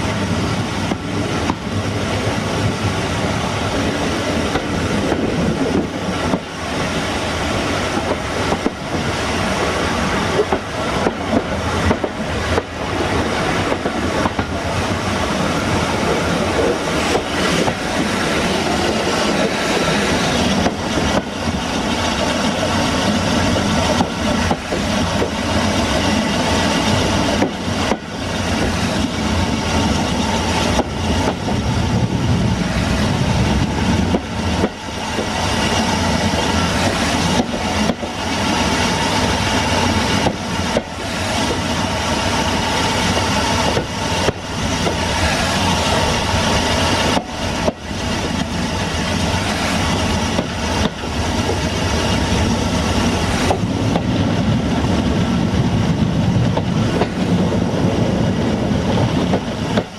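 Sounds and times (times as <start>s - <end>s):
train wheels rolling on rail: 0.0s - 59.9s.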